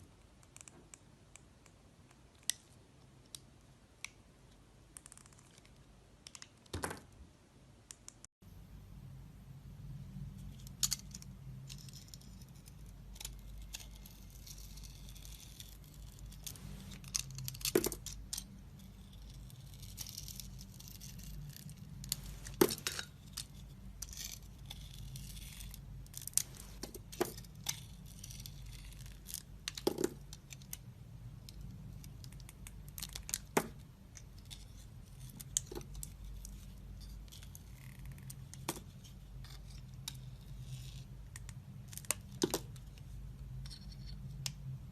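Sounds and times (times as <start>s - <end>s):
steady low hum: 8.4s - 44.9s
knife shaving soap: 11.8s - 22.3s, 23.2s - 29.8s.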